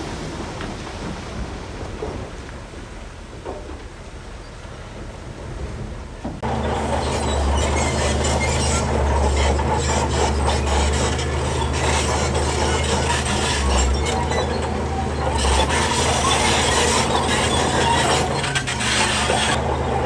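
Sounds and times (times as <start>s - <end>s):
stone scraping and clattering: 6.4s - 19.6s
diesel machine running: 6.4s - 20.0s.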